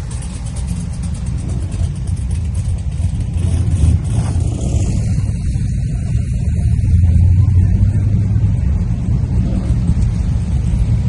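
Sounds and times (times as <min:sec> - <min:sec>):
car engine low rumble: 0:00.0 - 0:11.0.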